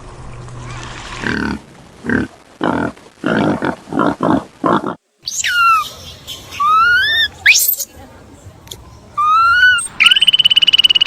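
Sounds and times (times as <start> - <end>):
high whistled animal calls: 5.2 - 7.8, 9.2 - 11.0.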